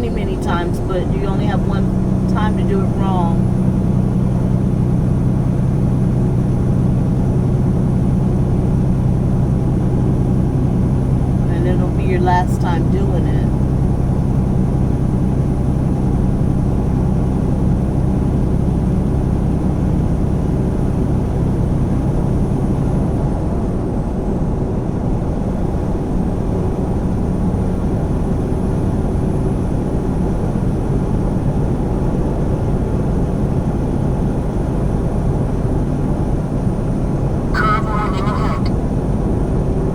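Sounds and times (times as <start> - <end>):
diesel truck engine droning: 0.0 - 21.4, 37.6 - 38.8
road noise inside cab: 0.0 - 39.9.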